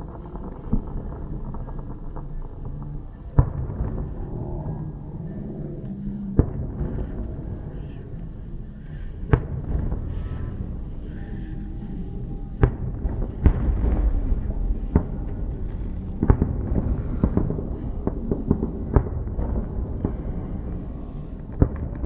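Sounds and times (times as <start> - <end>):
fireworks bangs: 0.0 - 4.4, 6.3 - 7.9, 8.9 - 11.0, 12.5 - 22.0
steady low rumble: 0.0 - 22.0.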